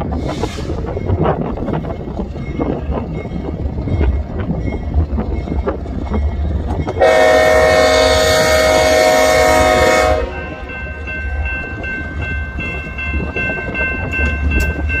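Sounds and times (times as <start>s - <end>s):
freight train rolling by: 0.0s - 15.0s
train wheels clicking on rails: 0.0s - 15.0s
locomotive air horn: 7.0s - 10.6s.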